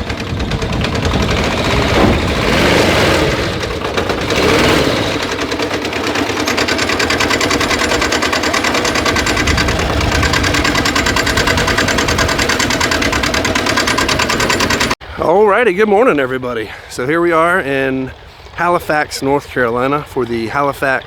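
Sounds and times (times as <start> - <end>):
engine pulsing steadily: 0.0 - 15.0.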